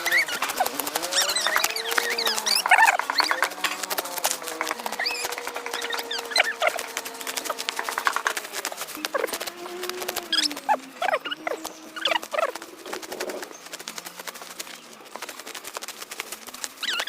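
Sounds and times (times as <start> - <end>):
squeaky chirps sweeping down: 0.0 - 3.9, 4.5 - 7.7, 9.0 - 12.5
sickle cutting dry grass: 0.0 - 17.0.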